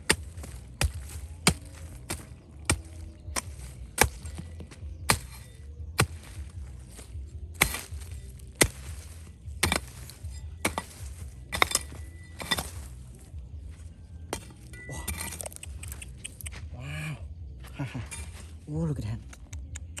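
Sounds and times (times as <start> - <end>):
hand tool striking hard material: 0.0 - 13.4, 14.3 - 15.6, 18.1 - 18.6
steady low hum: 0.0 - 18.6
clinking: 9.6 - 13.0.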